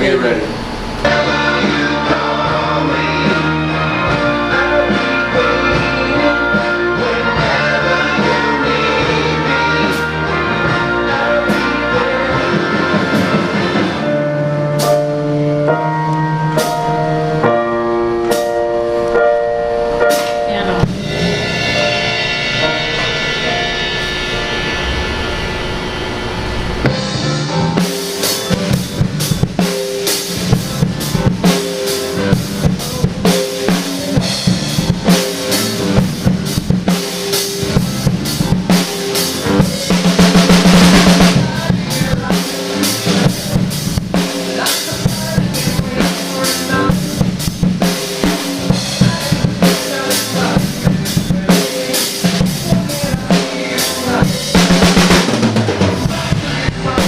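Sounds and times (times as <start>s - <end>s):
drum kit playing: 0.0s - 57.0s
recorded song: 0.0s - 57.0s
cymbal wash: 19.8s - 30.5s.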